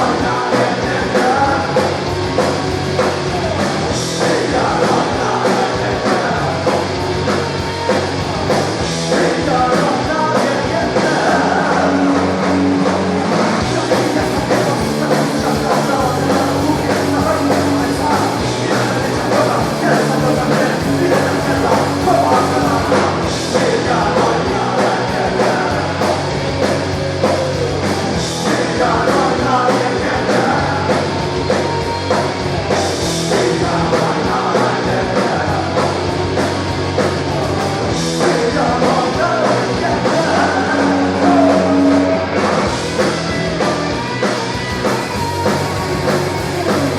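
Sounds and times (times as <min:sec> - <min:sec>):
person singing: 0:00.0 - 0:02.0, 0:03.0 - 0:12.4, 0:13.6 - 0:26.3, 0:27.2 - 0:32.2, 0:33.1 - 0:36.0, 0:37.4 - 0:42.4
rock band playing live: 0:00.0 - 0:46.9.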